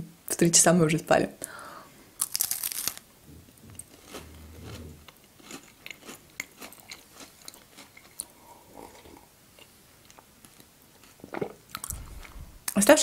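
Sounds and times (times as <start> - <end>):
chewing crunchy sweet: 2.2 - 3.0, 3.8 - 12.8.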